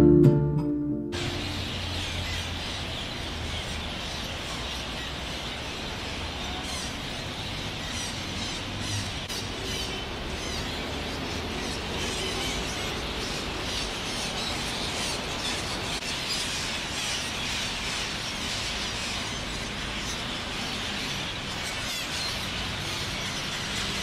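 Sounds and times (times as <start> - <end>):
parakeet flock calling: 1.2 - 4.8.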